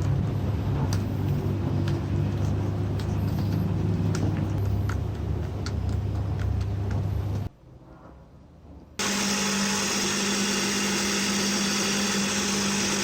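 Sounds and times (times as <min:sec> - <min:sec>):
machine motor humming: 0:09.0 - 0:13.0.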